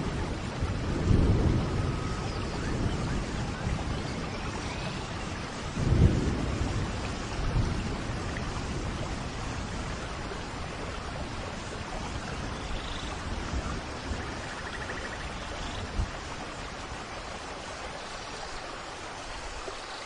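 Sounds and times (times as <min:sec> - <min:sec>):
thunder rolling: 0:00.0 - 0:15.1
steady rain: 0:00.0 - 0:20.0.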